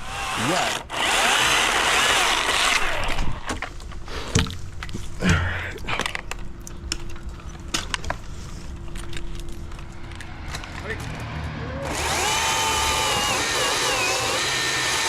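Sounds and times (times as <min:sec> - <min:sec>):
cordless chainsaw running: 0:00.0 - 0:03.4, 0:11.8 - 0:15.0.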